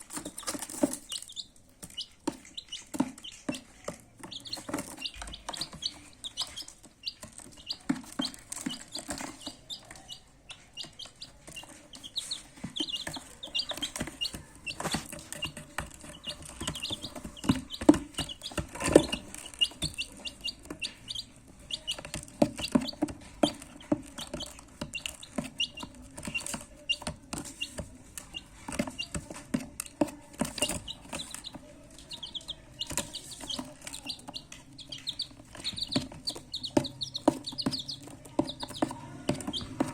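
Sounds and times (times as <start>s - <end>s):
baby chicks peeping: 0.0s - 39.9s
knocks and taps: 0.1s - 10.1s, 10.8s - 39.9s.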